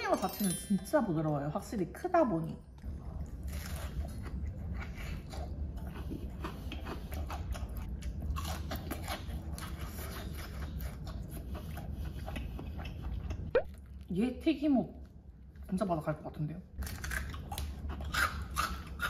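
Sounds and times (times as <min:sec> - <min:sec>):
chewing crunchy fried batter: 0:02.8 - 0:14.2, 0:16.8 - 0:19.0.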